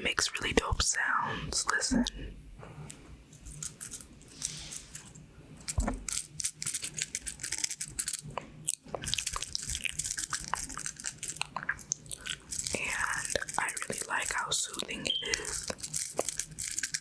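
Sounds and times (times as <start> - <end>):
pin art pins clattering: 12.4 - 17.0.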